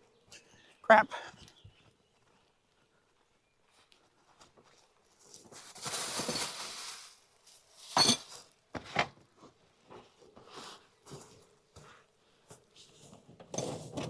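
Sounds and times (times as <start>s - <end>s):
rustling and scraping: 4.2s - 14.0s.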